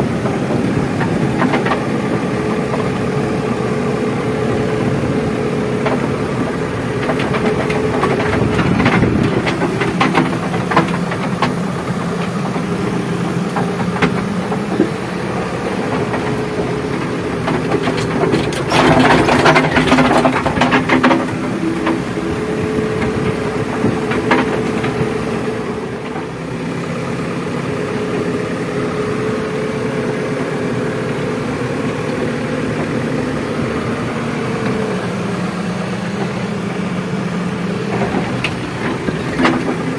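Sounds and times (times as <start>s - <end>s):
heavy diesel machinery running: 0.0s - 39.9s
rattling clatter: 4.9s - 26.4s, 37.8s - 39.9s
knocks and clanks: 5.8s - 26.4s, 37.9s - 39.9s.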